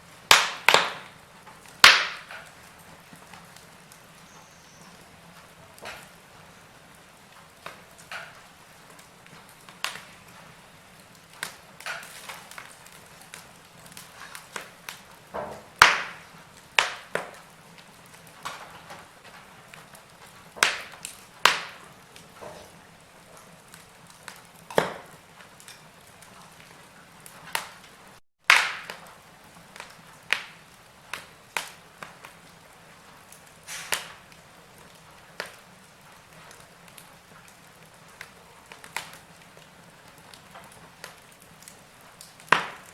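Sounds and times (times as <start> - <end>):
faint steady hiss: 0.0 - 42.9
wood fire crackling and popping: 0.0 - 42.9.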